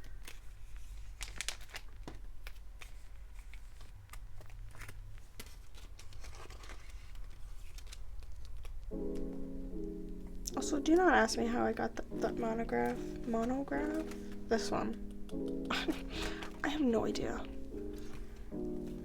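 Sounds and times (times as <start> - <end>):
plastic sleeves crinkling: 0.0 - 19.0
low steady hum: 9.4 - 19.0.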